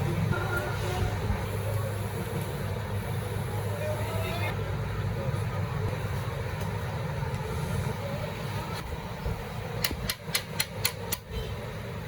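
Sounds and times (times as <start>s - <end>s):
low engine rumble: 0.0s - 12.0s
sharp clicks: 9.8s - 11.3s.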